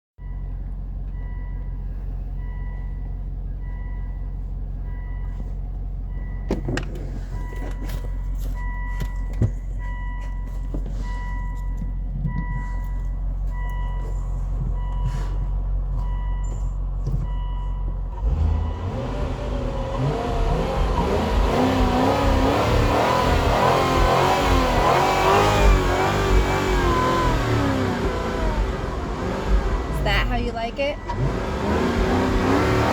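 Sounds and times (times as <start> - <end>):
car engine idling and revving: 0.2 - 32.9
warning chime beeping: 17.3 - 32.9.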